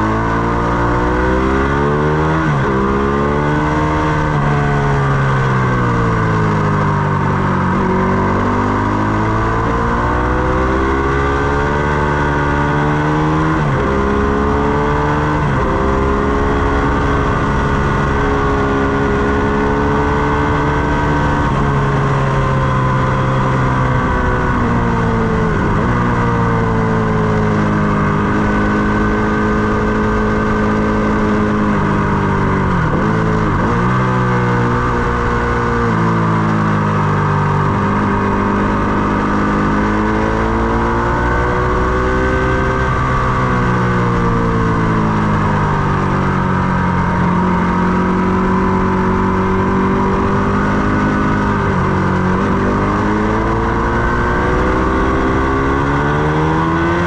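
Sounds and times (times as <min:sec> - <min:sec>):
motorcycle engine changing gears: 0:00.0 - 0:57.0
wind rush: 0:15.3 - 0:27.2.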